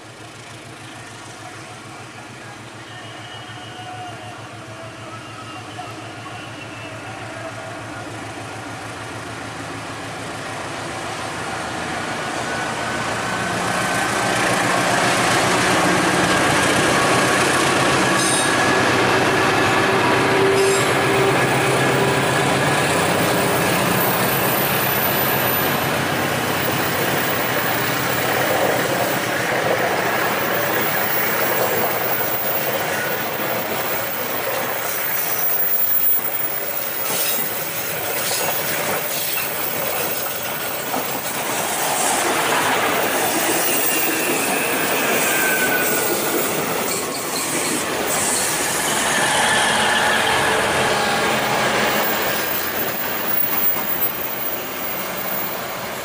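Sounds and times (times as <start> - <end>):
train wheels rushing on track: 0.0 - 56.0
wheels clickety-clack over rail joints: 13.3 - 48.6, 51.8 - 56.0
faint squealing tones: 43.5 - 54.3.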